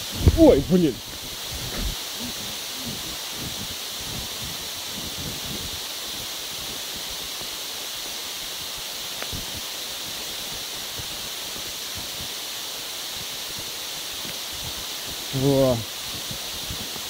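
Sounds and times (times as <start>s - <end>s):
wind buffeting microphone: 0.0s - 5.8s.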